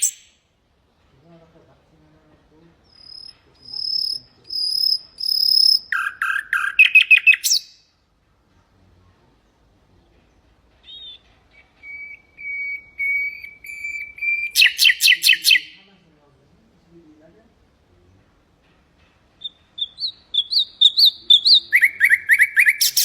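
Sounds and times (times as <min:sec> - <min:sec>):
nightingale singing: 0:00.0 - 0:00.5, 0:02.8 - 0:08.0, 0:10.1 - 0:15.9, 0:19.2 - 0:23.0.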